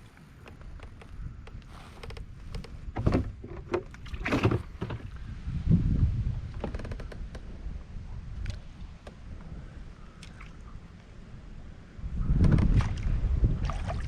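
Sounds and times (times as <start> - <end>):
wind rumble on microphone: 0.0 - 14.0
clicks knocks and creaks: 0.4 - 5.2, 6.5 - 7.5, 12.4 - 12.8.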